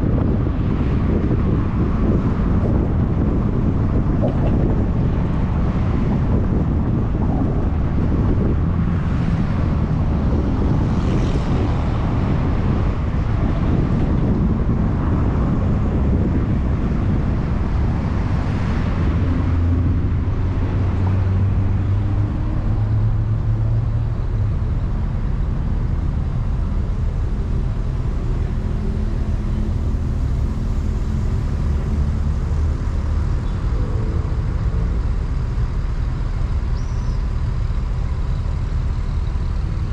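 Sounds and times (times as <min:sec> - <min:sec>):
car engine hum: 0:00.0 - 0:39.9
road noise: 0:00.0 - 0:39.9.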